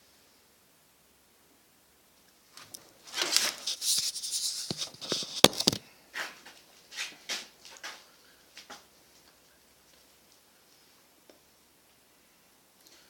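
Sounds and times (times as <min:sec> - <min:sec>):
objects rustling and scraping: 0:02.5 - 0:09.3.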